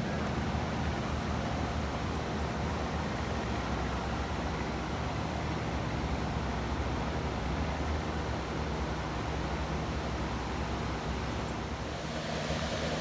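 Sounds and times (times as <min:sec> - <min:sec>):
river water rushing: 0:11.7 - 0:13.0.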